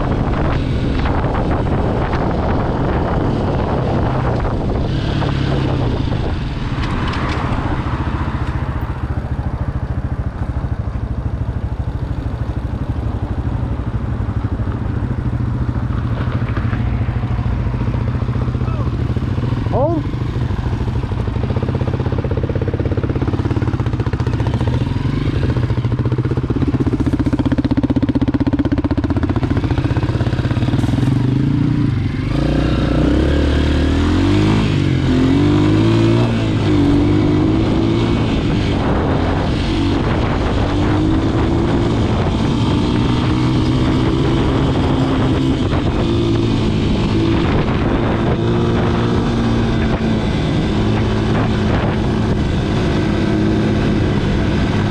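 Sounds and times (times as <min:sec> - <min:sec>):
dirt bike engine revving: 0:23.1 - 0:54.9.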